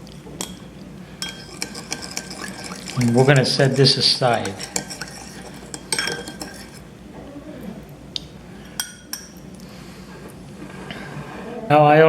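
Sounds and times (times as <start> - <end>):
spoon and dishes clinking: 0.4 - 3.6, 4.3 - 6.8, 8.6 - 9.4.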